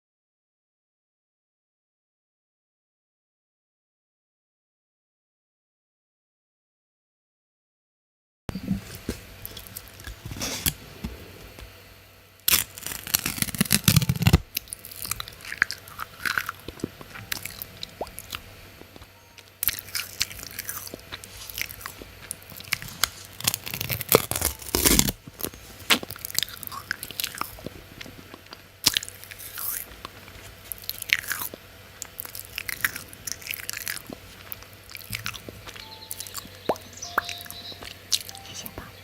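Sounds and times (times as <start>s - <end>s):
crunchy food chewing: 8.6s - 11.8s, 12.4s - 39.0s.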